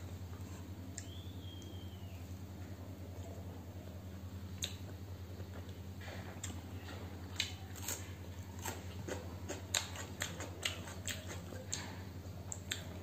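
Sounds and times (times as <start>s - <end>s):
steady low hum: 0.0s - 13.0s
wet chewing: 4.6s - 13.0s
crunchy onion bites: 6.4s - 12.9s.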